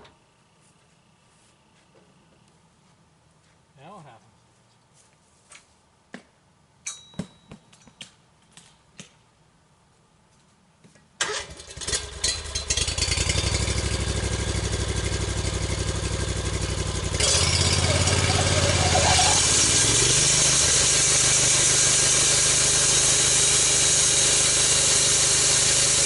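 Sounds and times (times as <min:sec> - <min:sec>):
small gas engine running: 0:11.2 - 0:26.0.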